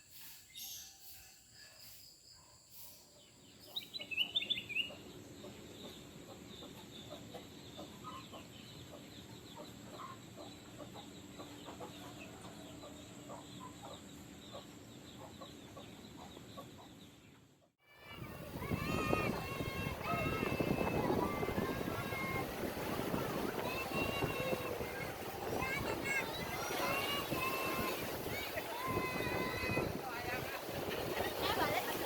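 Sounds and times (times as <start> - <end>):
low clucking bird calls: 3.6 - 17.7.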